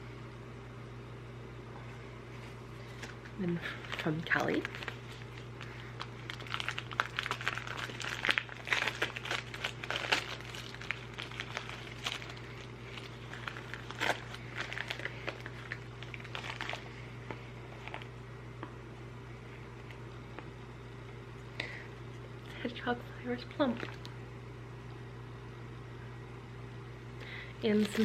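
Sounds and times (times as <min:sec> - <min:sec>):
wrapping paper crinkling: 0:02.3 - 0:18.2, 0:27.6 - 0:28.0.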